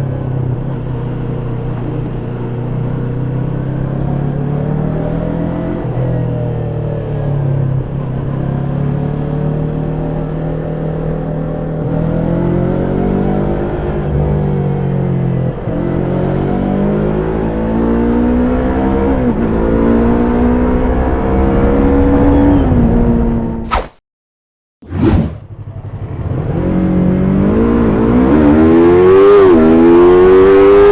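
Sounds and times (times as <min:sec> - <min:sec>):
motorcycle engine accelerating: 0:00.0 - 0:23.7, 0:24.9 - 0:30.9.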